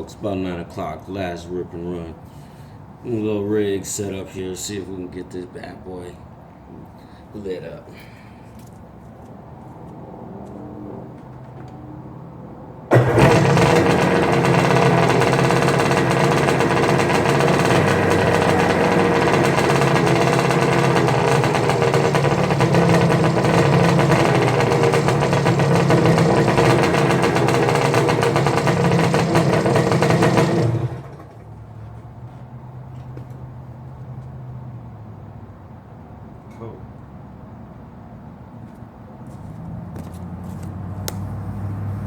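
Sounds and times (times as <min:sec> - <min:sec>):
jet ski engine starting and running: 0:12.9 - 0:31.9, 0:41.0 - 0:42.0.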